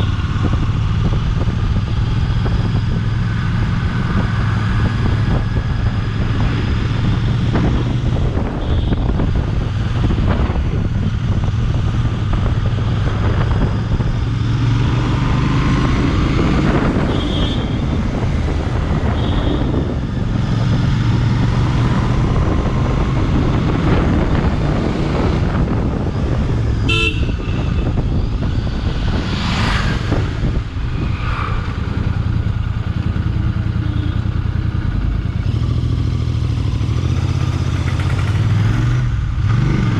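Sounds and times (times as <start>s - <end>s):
wind noise on microphone: 0.0s - 39.9s
vehicle horn toots: 8.5s - 9.1s, 19.1s - 19.7s, 26.8s - 28.0s
motorcycle engine running: 31.7s - 39.4s.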